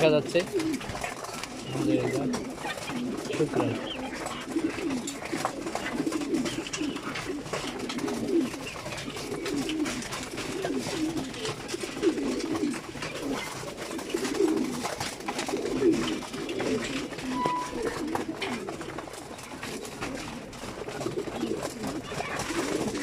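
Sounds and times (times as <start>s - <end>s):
pigeons cooing: 0.0s - 23.0s.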